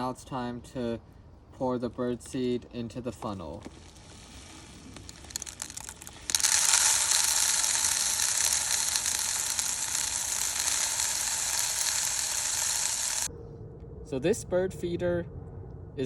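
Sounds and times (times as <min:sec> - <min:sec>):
seed rattling into plastic bottle: 0:03.5 - 0:13.3.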